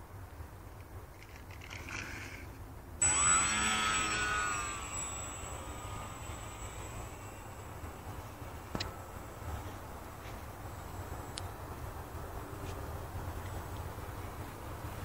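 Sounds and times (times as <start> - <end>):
electric motor and propeller whining: 3.0 - 12.0.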